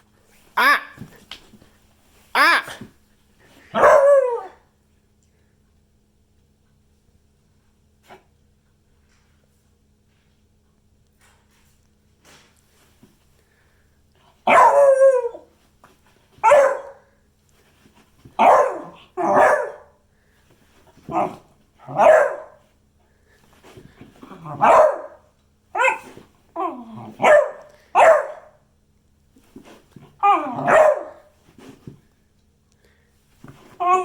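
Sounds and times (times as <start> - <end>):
dog barking and yowling: 3.7 - 4.6, 14.4 - 15.5, 16.4 - 17.1, 18.4 - 20.0, 21.1 - 22.6, 24.3 - 28.6, 30.2 - 31.3, 33.8 - 34.0.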